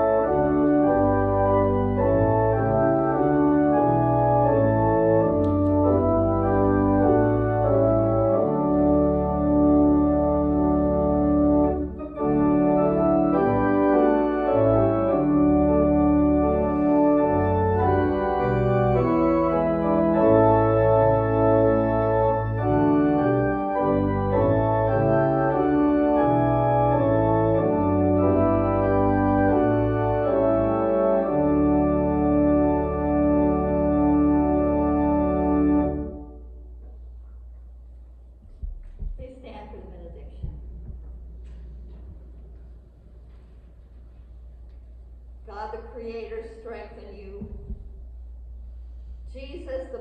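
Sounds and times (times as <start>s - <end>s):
church organ playing a hymn: 0.0s - 37.1s.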